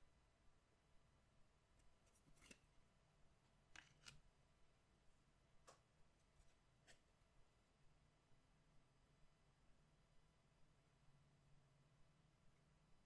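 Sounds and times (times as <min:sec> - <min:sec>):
faint clicks and scrapes of cards: 0:01.8 - 0:02.7, 0:03.8 - 0:04.2.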